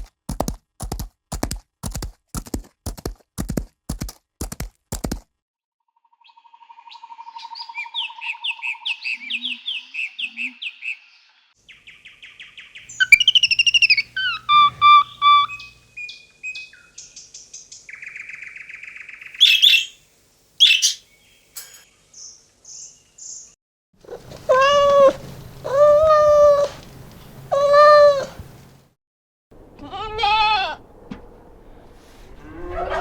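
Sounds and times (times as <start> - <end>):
animal chirps and clicks: 12.9 - 15.8
long evenly pitched animal calls: 12.9 - 15.8.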